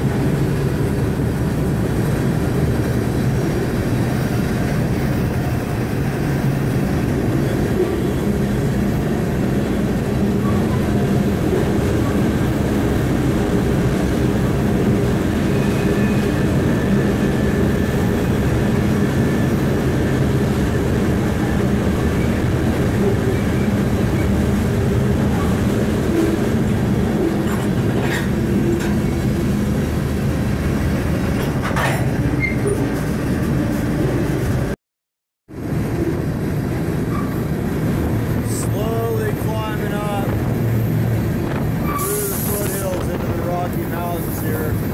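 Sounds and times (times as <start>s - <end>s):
train wheels rumbling on rails: 0.0s - 34.8s, 35.6s - 44.9s
train wheel squeal: 7.3s - 8.5s, 10.3s - 11.0s, 15.3s - 20.2s, 22.1s - 22.5s, 23.1s - 24.4s, 31.8s - 33.1s, 37.1s - 37.4s, 41.8s - 43.0s.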